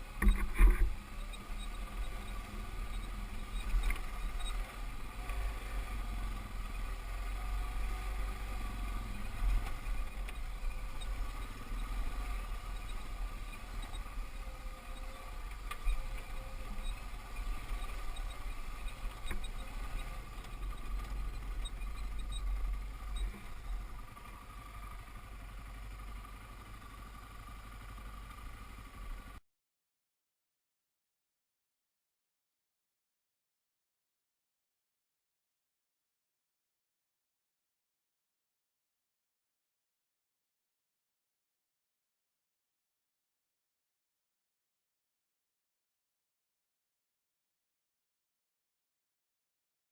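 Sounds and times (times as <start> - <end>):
dirt bike engine: 0.0 - 29.4.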